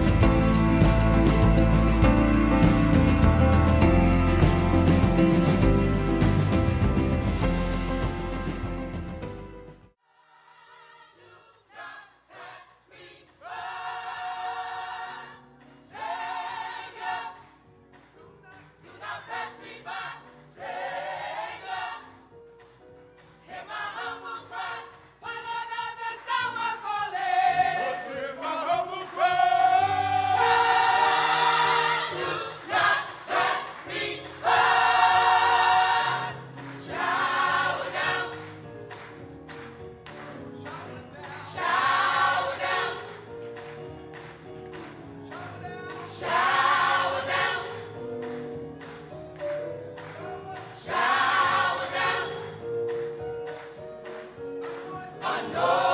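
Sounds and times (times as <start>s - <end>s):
choir singing gospel: 0.0s - 9.3s, 10.1s - 22.5s, 23.2s - 55.9s.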